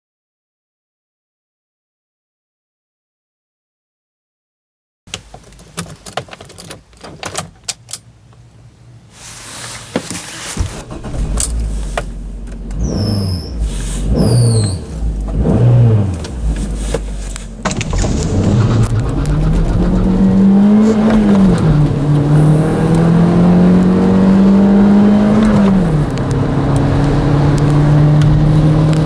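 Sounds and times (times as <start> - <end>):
keys and cabin rattling: 5.1 - 8.1
van engine starting and idling: 5.2 - 29.0
engine revving: 10.8 - 29.0.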